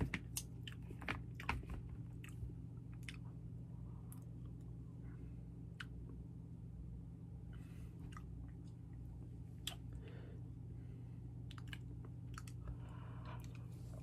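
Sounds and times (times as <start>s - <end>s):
person chewing food: 0.3s - 3.4s, 8.0s - 10.1s, 11.4s - 14.0s.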